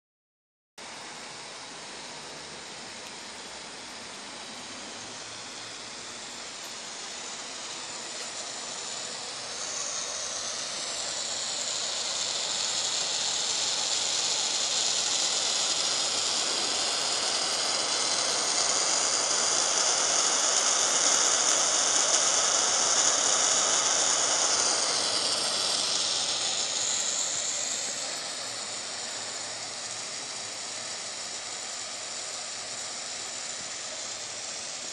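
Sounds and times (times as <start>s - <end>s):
steam heater hissing: 0.8s - 34.9s.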